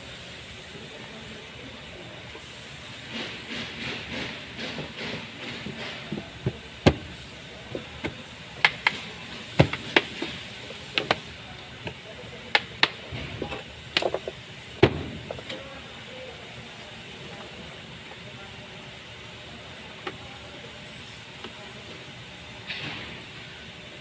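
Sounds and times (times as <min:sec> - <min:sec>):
tools clicking and knocking: 0:07.7 - 0:15.6.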